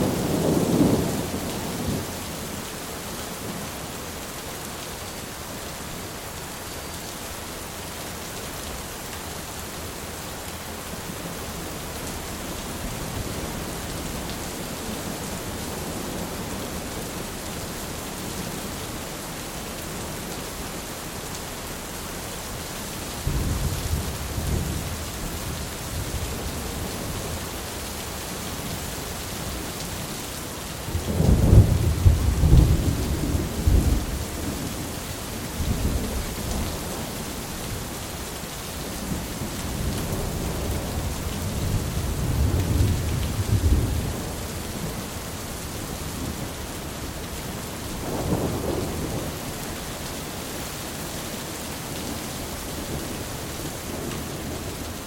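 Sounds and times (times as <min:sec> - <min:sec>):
steady rain: 0:00.0 - 0:55.0
thunder rumbling: 0:48.0 - 0:49.5.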